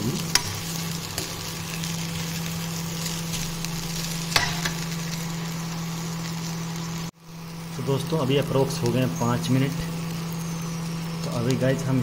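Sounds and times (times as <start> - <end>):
okra sizzling in a pan: 0.0 - 12.0.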